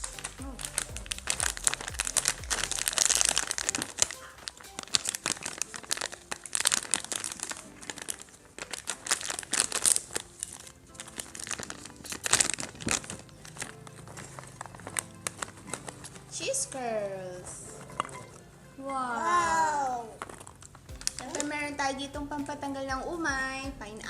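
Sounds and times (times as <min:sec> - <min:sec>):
plastic snack bag crinkling: 0:00.0 - 0:18.4, 0:19.8 - 0:21.8
background music: 0:00.0 - 0:24.0.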